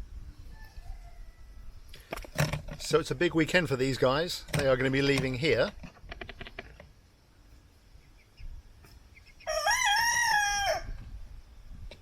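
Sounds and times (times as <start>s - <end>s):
cockerel crowing: 9.4s - 11.0s.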